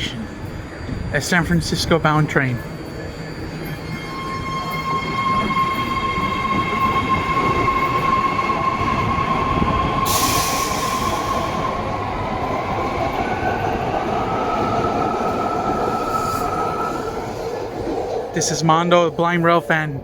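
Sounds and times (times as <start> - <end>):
high train whine: 0.0 - 20.0
train wheels rumbling on rails: 0.0 - 20.0
air hiss: 10.0 - 11.7.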